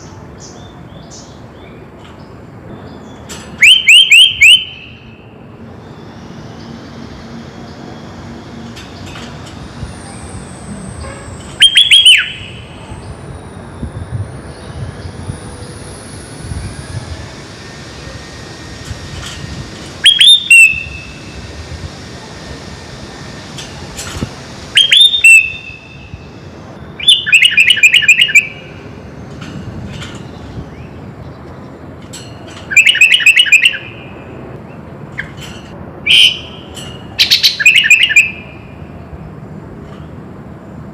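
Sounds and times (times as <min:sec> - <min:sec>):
bird chirping: 0:11.0 - 0:13.3, 0:26.9 - 0:28.8, 0:36.1 - 0:38.7.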